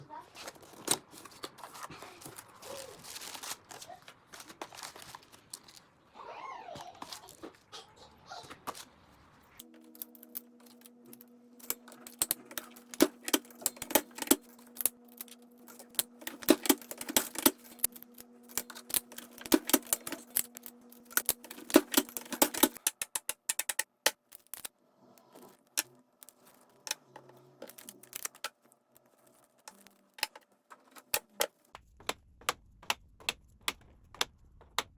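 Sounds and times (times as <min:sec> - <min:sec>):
steady hum: 0:08.9 - 0:23.1.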